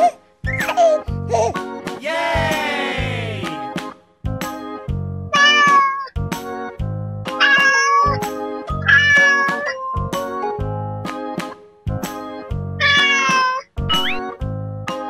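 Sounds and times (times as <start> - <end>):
children's music with steady beat: 1.8 - 5.0
cat meowing: 5.4 - 6.1, 7.4 - 8.2, 8.9 - 9.6, 12.8 - 13.6.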